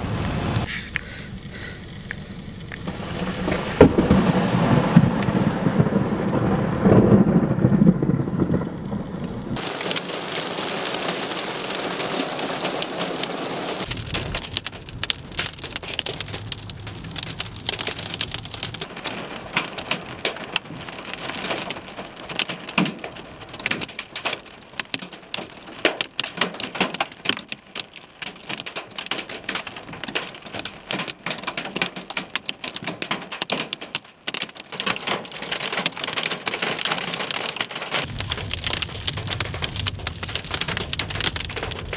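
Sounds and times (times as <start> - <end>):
thunder rumbling: 0.0 - 24.2, 38.0 - 41.9
heavy rain: 0.0 - 41.9
hailstones striking hard surface: 0.1 - 41.9.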